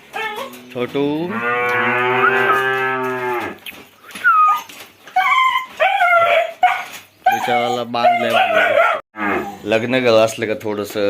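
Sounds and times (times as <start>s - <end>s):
calf mooing: 0.3s - 3.6s, 9.2s - 9.7s.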